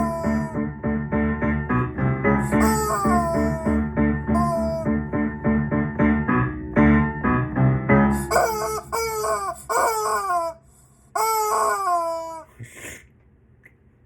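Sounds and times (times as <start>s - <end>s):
chicken squawking: 0.0s - 0.6s, 2.4s - 5.0s, 8.2s - 12.6s
background music: 0.0s - 9.1s.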